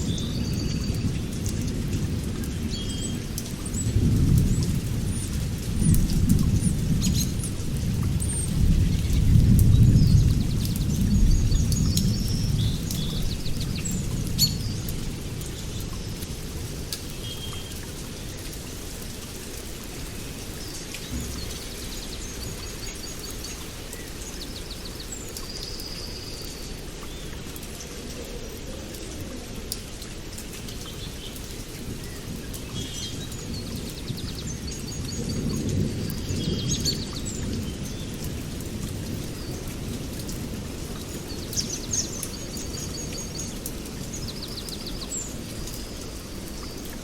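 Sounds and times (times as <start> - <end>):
songbirds singing: 0.0 - 1.5, 2.4 - 29.2, 30.6 - 47.0
rain falling: 0.0 - 47.0
low roll of thunder: 3.5 - 16.8, 19.9 - 25.1.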